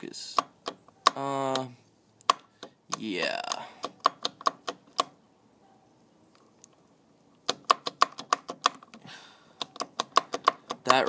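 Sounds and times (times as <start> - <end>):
sharp evenly spaced clicks: 0.2 - 5.2, 7.3 - 11.0.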